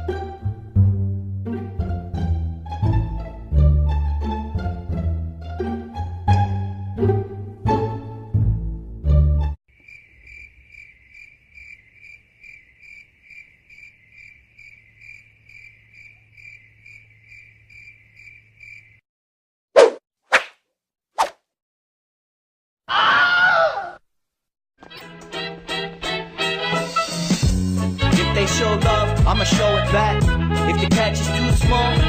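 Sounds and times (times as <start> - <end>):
plucked-string music: 0.0 - 9.6, 24.8 - 27.0
cricket chirping: 9.7 - 19.0
sharp slap: 19.8 - 20.6, 21.2 - 21.4.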